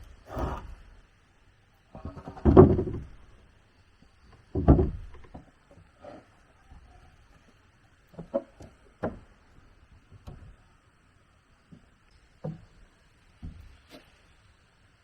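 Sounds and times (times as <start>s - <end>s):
light knocks and clunks: 1.9s - 3.3s, 4.3s - 10.6s, 11.7s - 14.2s.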